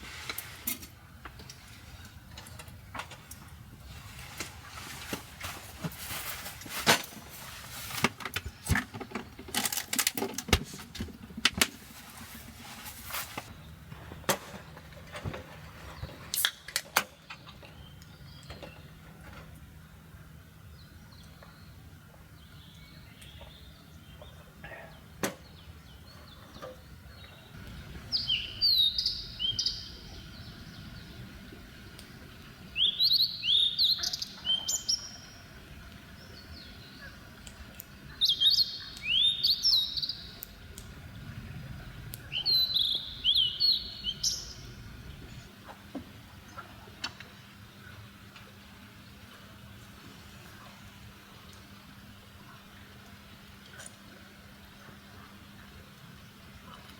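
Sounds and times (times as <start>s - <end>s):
bird chirping: 22.4s - 37.2s, 38.0s - 40.6s, 42.2s - 45.5s.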